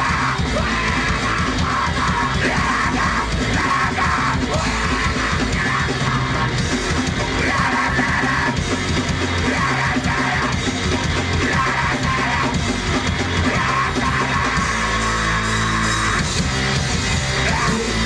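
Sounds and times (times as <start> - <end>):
person yelling vocals: 0.0 - 6.6, 7.3 - 8.6, 9.4 - 10.6, 11.4 - 12.6, 13.4 - 16.2, 17.4 - 18.0
drum kit: 0.0 - 18.0
electric guitar: 0.0 - 18.0.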